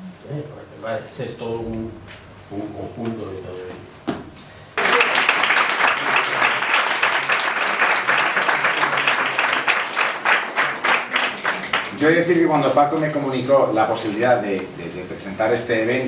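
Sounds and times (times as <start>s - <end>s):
audience applauding: 4.8s - 12.3s.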